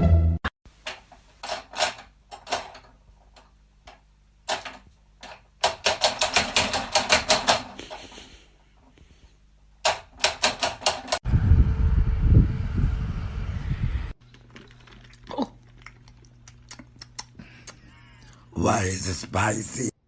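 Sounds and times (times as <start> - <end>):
low rumbling noise: 11.2 - 14.2.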